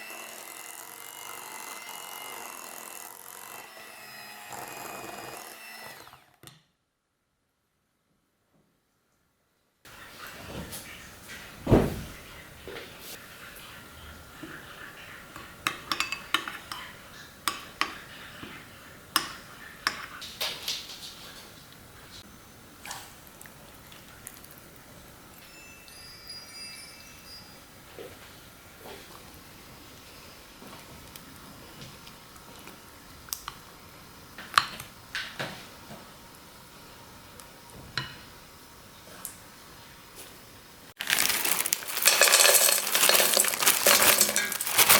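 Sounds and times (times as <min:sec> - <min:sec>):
kitchen utensils and dishes clicking: 0:15.4 - 0:18.0, 0:41.0 - 0:44.9.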